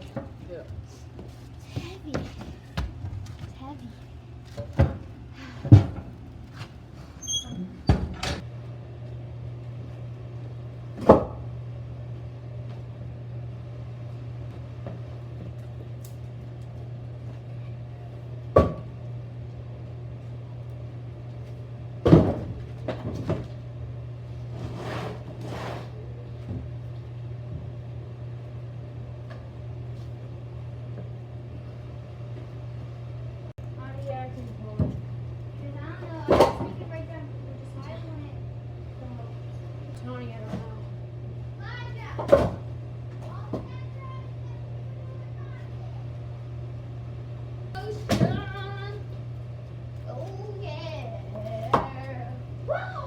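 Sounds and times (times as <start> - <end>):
steady low hum: 0.0 - 53.0
wood scraping: 24.4 - 26.0.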